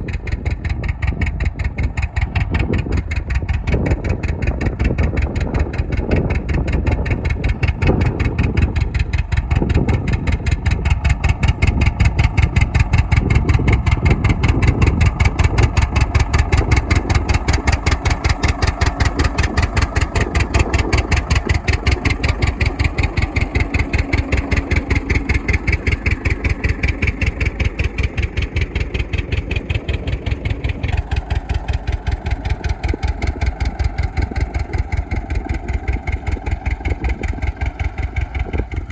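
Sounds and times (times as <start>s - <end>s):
old engine running: 0.0s - 38.9s.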